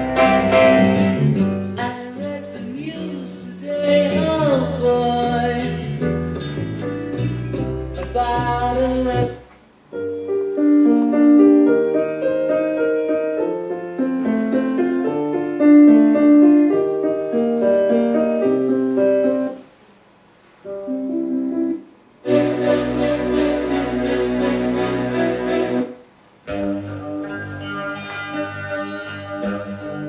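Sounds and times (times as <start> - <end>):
piano music: 0.0 - 19.6, 20.7 - 30.0.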